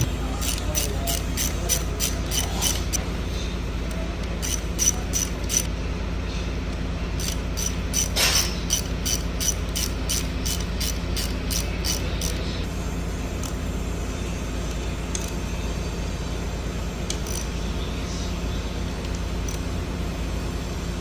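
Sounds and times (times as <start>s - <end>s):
ratchet wrench clicking: 0.3s - 3.0s, 4.2s - 5.7s, 7.2s - 12.4s, 15.1s - 15.4s, 17.1s - 17.6s, 19.0s - 19.6s.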